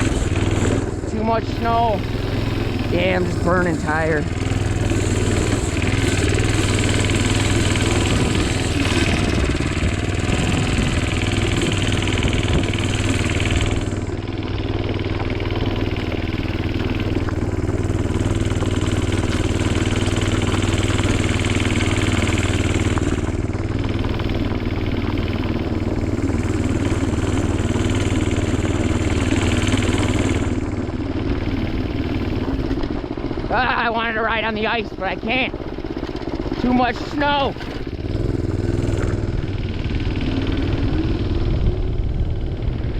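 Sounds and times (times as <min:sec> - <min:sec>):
small engine running: 0:00.0 - 0:42.9.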